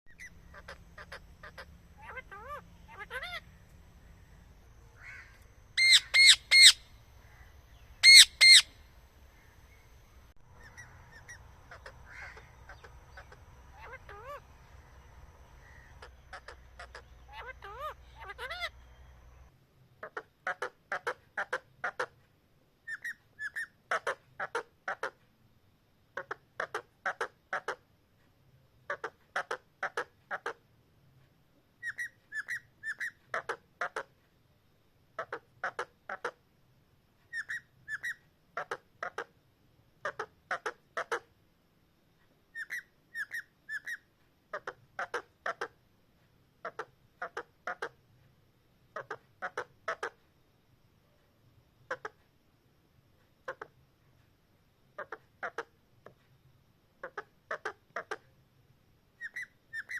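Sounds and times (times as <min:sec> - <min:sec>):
parrot whistling: 0:05.8 - 0:06.9, 0:08.0 - 0:08.7, 0:59.2 - 0:59.9.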